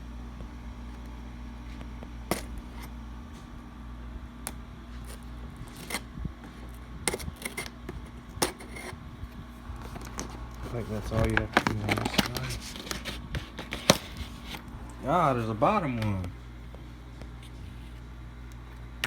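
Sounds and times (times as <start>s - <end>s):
steady low hum: 0.0s - 19.0s
cardboard scraping: 4.9s - 9.0s, 9.7s - 14.7s.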